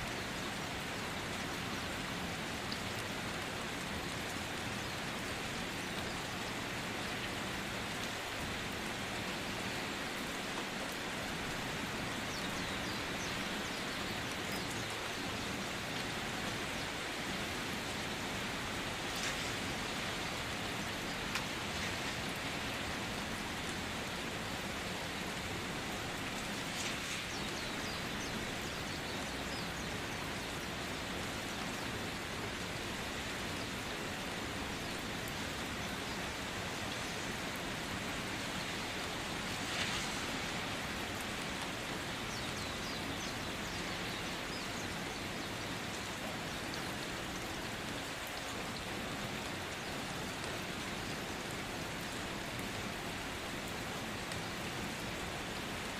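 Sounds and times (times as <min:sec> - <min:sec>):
faint crackles: 0:18.9 - 0:23.8, 0:25.9 - 0:28.9, 0:38.5 - 0:41.7.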